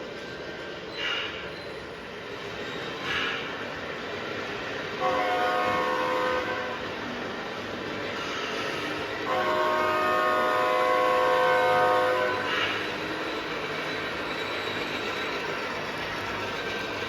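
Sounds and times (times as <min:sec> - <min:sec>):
multi-chime air horn: 0:09.3 - 0:12.8.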